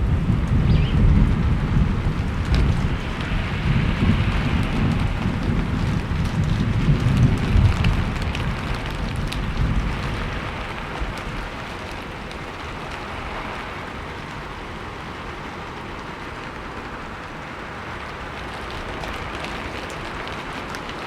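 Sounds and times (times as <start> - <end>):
low rumble of thunder: 0.0 - 15.8
rain hissing: 0.0 - 21.0
raindrop ticks: 0.0 - 21.0.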